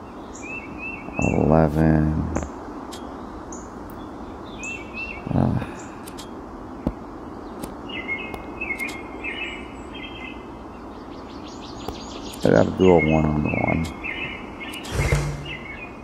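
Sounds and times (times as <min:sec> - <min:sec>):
birds chirping: 0:00.0 - 0:16.0
light clicks: 0:06.0 - 0:06.3, 0:07.6 - 0:09.0.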